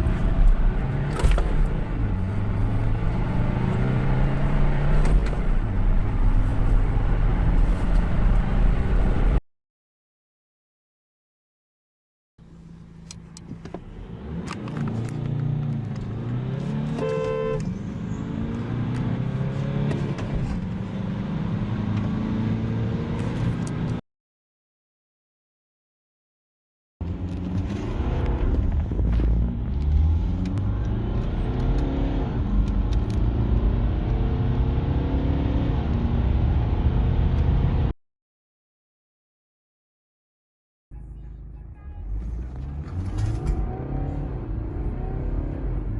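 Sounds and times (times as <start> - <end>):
diesel engine accelerating hard: 0.0 - 9.4, 27.0 - 37.9, 42.1 - 45.9.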